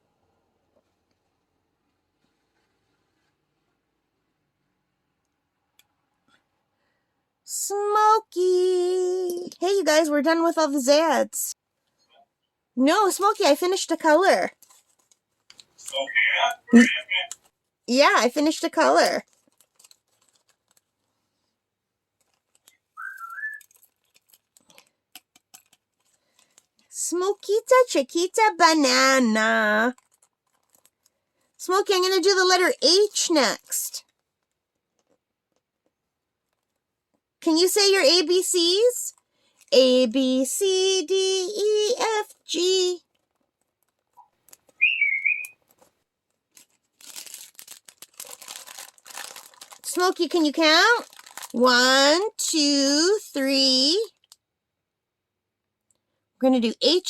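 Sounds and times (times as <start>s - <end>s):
crinkling with small clicks: 14.5s - 16.1s, 17.2s - 17.6s, 18.8s - 21.2s, 22.1s - 27.8s, 29.9s - 32.0s, 33.3s - 37.3s, 43.0s - 44.8s, 45.4s - 51.6s, 54.0s - 54.4s
parrot whistle through speaker: 23.0s - 23.6s, 44.8s - 45.6s.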